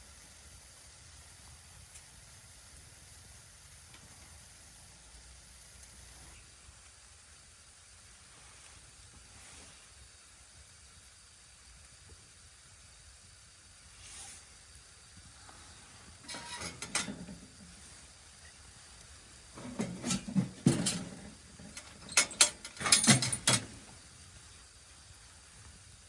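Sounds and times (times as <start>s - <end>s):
faint steady hiss: 0.0s - 26.0s
clattering and knocking: 16.2s - 17.8s, 19.6s - 23.9s.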